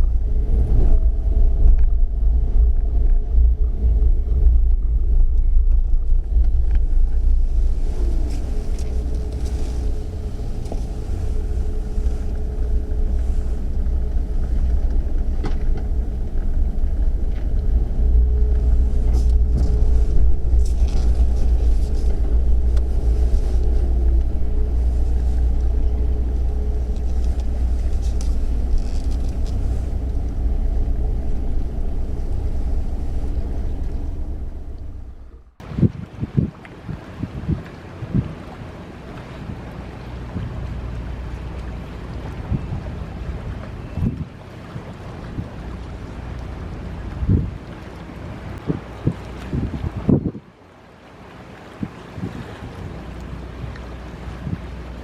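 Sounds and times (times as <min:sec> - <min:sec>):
faint machine hum: 0:00.0 - 0:35.6
wind buffeting microphone: 0:00.0 - 0:50.5, 0:51.6 - 0:55.0.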